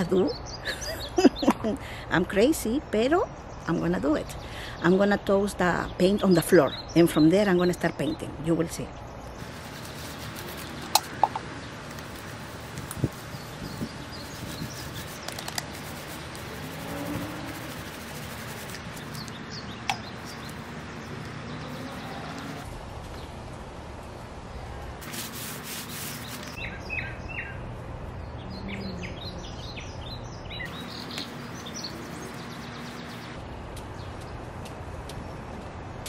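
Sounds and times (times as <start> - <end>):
bird chirps: 26.1 - 27.6, 28.2 - 33.4.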